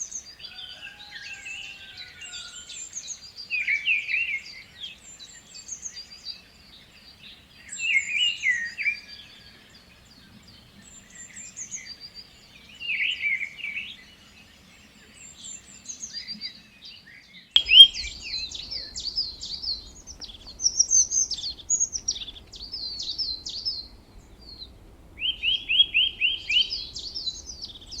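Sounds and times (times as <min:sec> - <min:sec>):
birds chirping and trilling: 0:17.6 - 0:28.0
faint low hum: 0:17.6 - 0:28.0.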